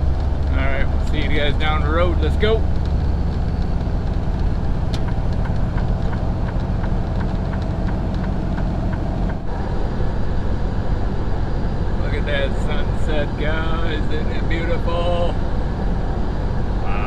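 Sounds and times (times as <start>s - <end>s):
truck engine and road rumble: 0.0s - 17.0s
faint ticks: 2.8s - 9.4s.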